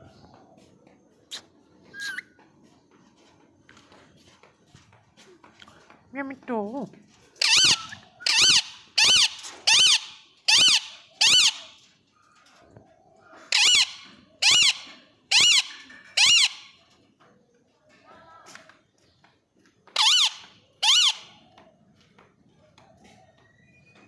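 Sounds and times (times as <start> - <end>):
parrot squawking: 2.0 - 2.2, 7.4 - 11.7, 13.5 - 16.7, 20.0 - 21.3.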